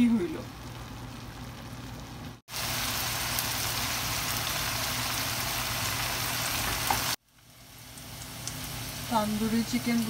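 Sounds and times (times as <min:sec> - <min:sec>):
chicken sizzling in a pan: 0:00.0 - 0:10.0.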